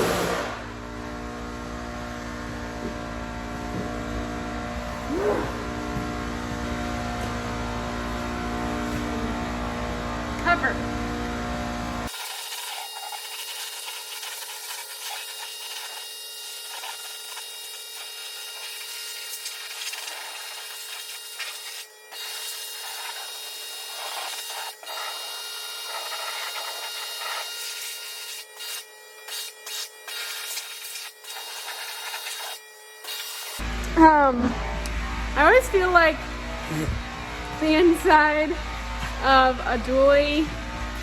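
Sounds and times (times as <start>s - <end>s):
pressure washer spraying water: 2.2s - 28.4s, 29.3s - 33.6s.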